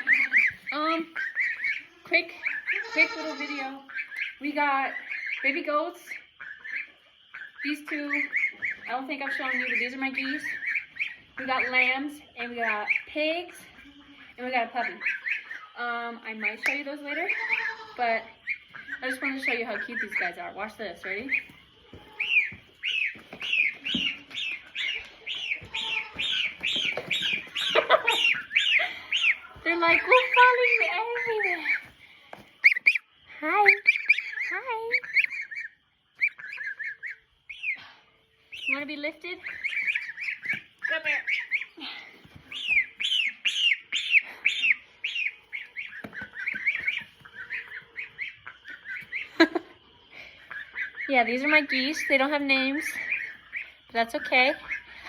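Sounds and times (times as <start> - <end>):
young geese peeping: 0.0 - 55.0.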